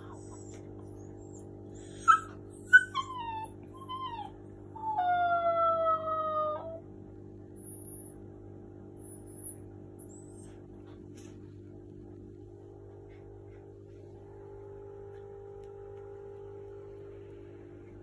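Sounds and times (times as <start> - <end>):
puppy howling woo: 0.0 - 6.8.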